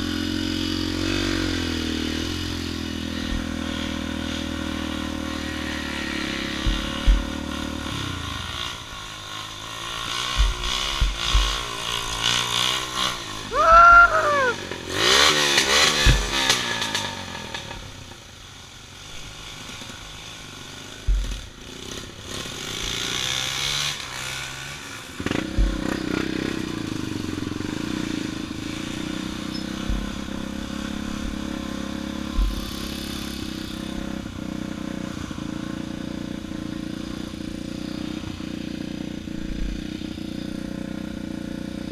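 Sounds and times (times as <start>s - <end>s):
motorcycle engine revving: 0.0s - 41.9s
thumps and clattering: 16.0s - 16.6s.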